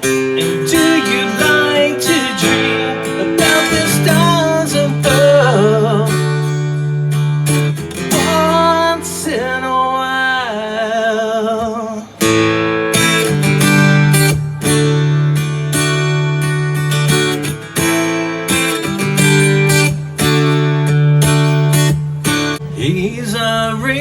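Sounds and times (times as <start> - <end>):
person singing with vibrato: 0.0 - 6.9, 8.0 - 12.4
strummed acoustic guitar: 0.0 - 24.0.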